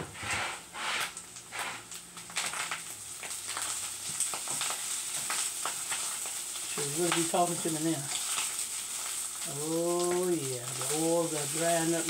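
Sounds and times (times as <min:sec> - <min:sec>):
wooden spatula scraping a pan: 0:00.0 - 0:01.9
hash sizzling in a frying pan: 0:00.4 - 0:12.0.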